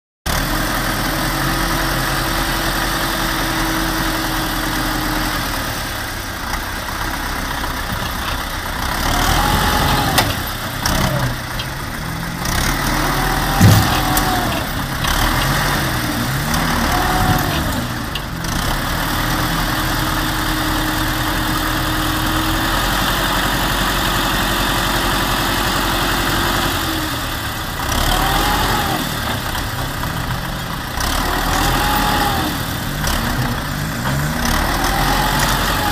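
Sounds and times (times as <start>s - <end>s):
vehicle engine idling and revving: 0.3s - 35.9s.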